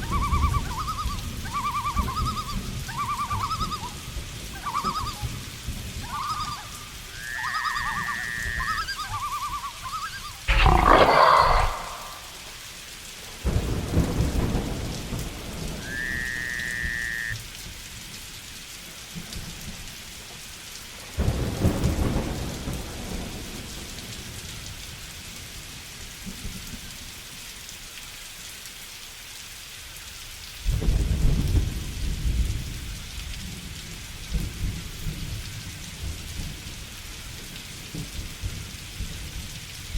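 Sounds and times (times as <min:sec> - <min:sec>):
heavy rain: 0:00.0 - 0:39.9
short pitched animal calls: 0:10.2 - 0:12.6
rolling thunder: 0:13.4 - 0:16.0.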